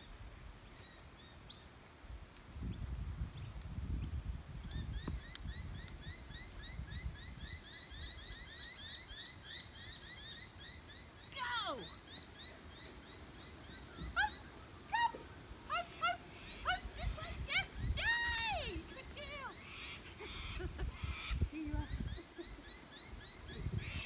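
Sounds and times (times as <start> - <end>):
birds chirping: 3.4 - 24.0
short arched bird calls: 18.9 - 24.0.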